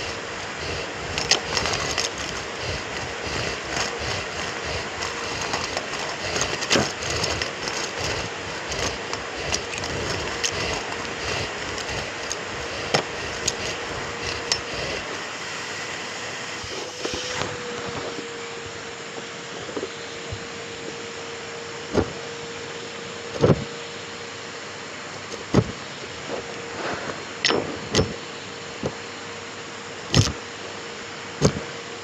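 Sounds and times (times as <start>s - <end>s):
dense crackling: 0.0s - 15.0s
vacuum cleaner motor hum: 0.0s - 32.0s.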